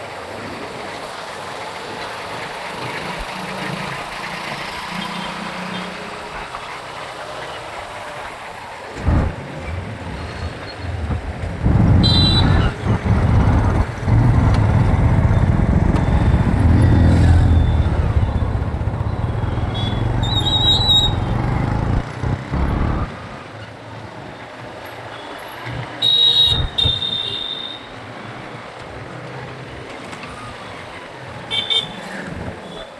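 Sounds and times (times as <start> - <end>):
motorcycle engine and road rumble: 8.9 - 24.2, 26.4 - 27.3
short high squeals: 10.2 - 23.1.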